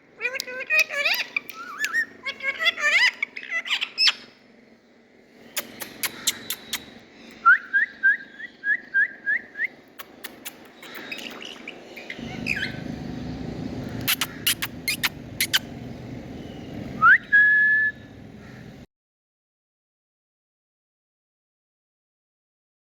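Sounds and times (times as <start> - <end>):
parrot clicks: 0.2 - 2.0, 5.6 - 6.9, 10.0 - 11.4, 14.0 - 15.6
parrot chirping: 0.2 - 4.4, 5.4 - 7.0, 9.4 - 18.8
parrot rising whistle: 17.0 - 18.0.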